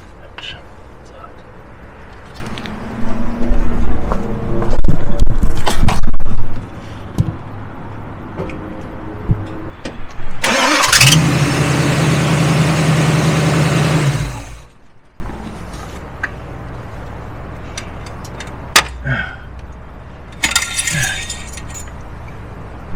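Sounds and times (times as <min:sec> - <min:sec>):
car engine cranking and idling: 0:10.4 - 0:14.8.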